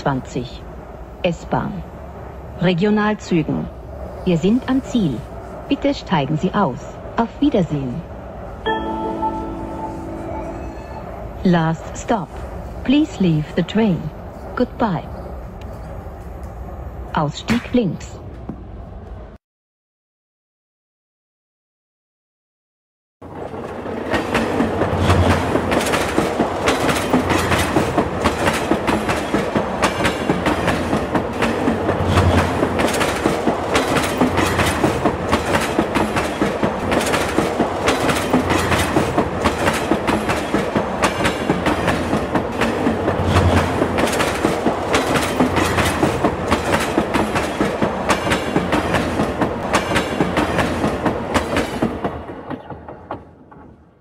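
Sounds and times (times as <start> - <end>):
train wheels clattering on track: 23.3 - 54.0.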